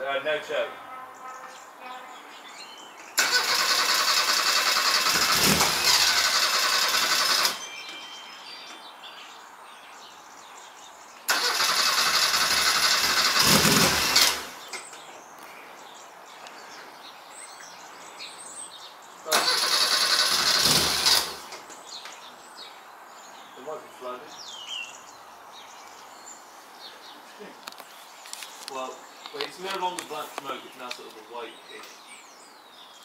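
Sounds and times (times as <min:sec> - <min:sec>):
engine cranking on starter: 0:03.2 - 0:07.7, 0:11.3 - 0:14.7, 0:19.3 - 0:21.6.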